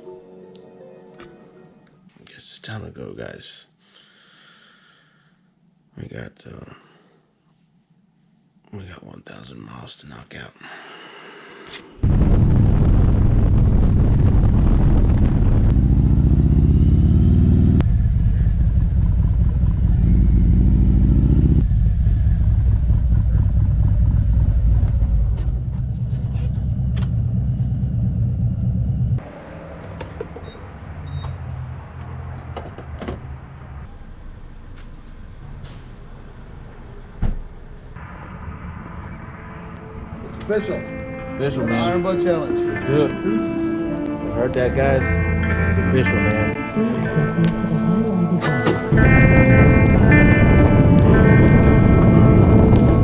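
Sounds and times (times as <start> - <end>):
motorcycle engine running: 15.7 - 29.2.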